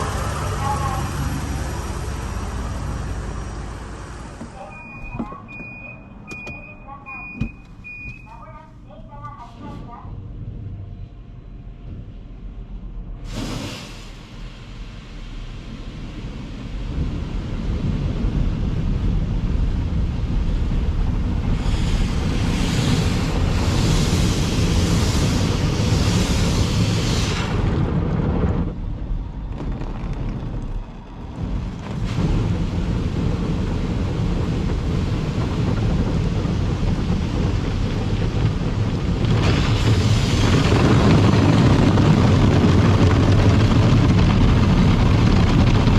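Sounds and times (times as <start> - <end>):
car wash water and machinery: 0.0 - 45.9
hissing water spray: 21.5 - 27.7.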